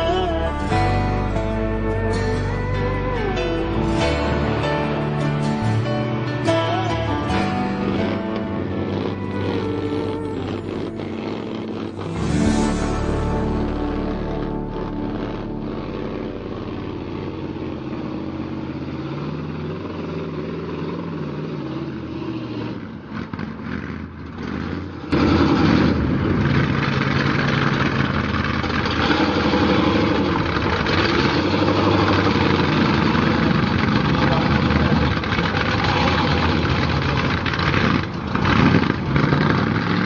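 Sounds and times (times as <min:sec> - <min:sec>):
truck engine running: 0:00.0 - 0:40.0.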